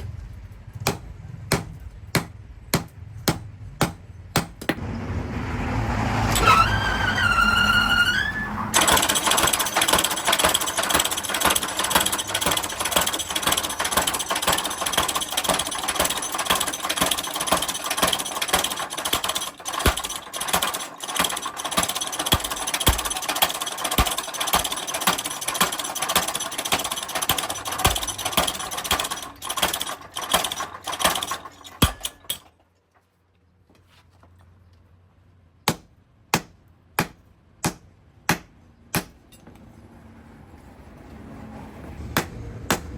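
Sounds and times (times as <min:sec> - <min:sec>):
machine rattling clatter: 0:07.8 - 0:32.7
sharp metal strikes: 0:08.8 - 0:29.8, 0:30.4 - 0:32.5.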